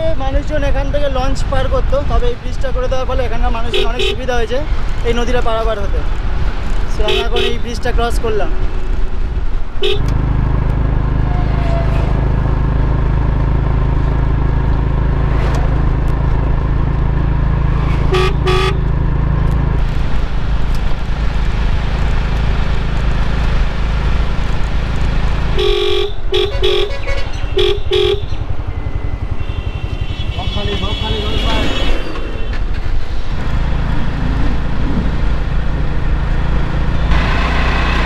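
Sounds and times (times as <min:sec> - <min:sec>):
engine and road noise: 0:00.0 - 0:38.0
horn toots: 0:07.0 - 0:07.7, 0:09.8 - 0:10.1, 0:17.9 - 0:18.9, 0:25.6 - 0:32.7.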